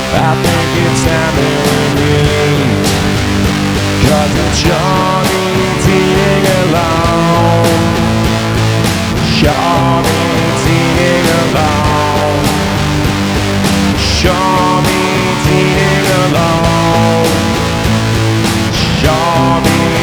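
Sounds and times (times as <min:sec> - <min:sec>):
rock band playing instrumental: 0:00.0 - 0:20.0.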